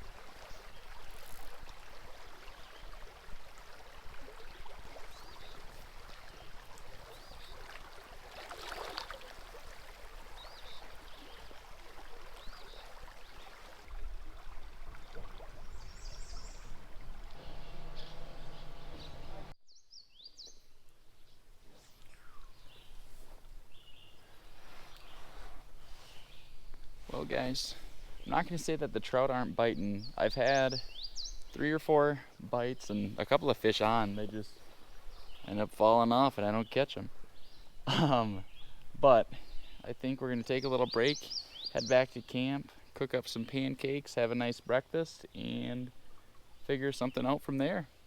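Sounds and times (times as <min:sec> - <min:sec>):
flowing stream: 0:00.0 - 0:19.6, 0:21.5 - 0:48.0
bird chirps: 0:15.6 - 0:20.7, 0:40.8 - 0:42.3.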